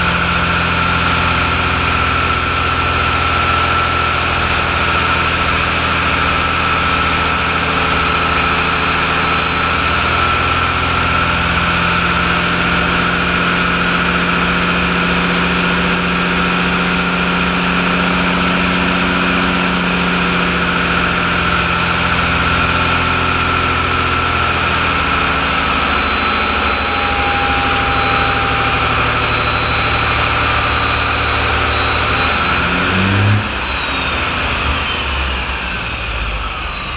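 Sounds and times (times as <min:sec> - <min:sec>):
diesel truck engine running: 0:00.0 - 0:36.9
high whine: 0:00.0 - 0:36.9.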